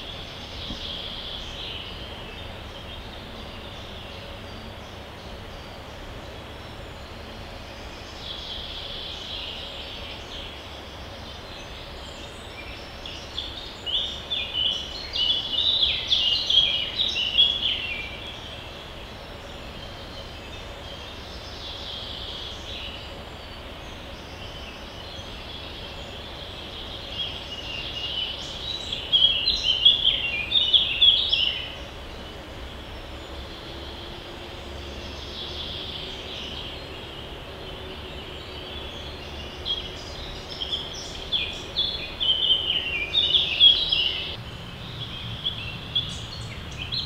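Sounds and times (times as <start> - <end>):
low background noise: 0.0 - 47.0.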